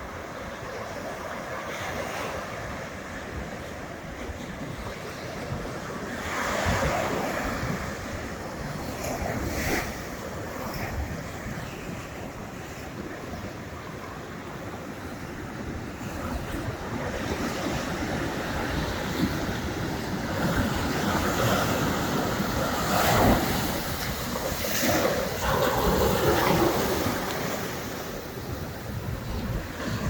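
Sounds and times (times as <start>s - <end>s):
wind buffeting microphone: 0.0s - 30.0s
surf breaking on beach: 15.8s - 30.0s.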